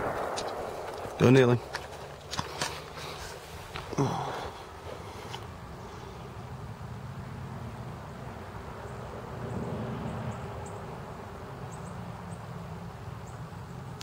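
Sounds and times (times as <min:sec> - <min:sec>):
low rumble: 0:00.0 - 0:03.9.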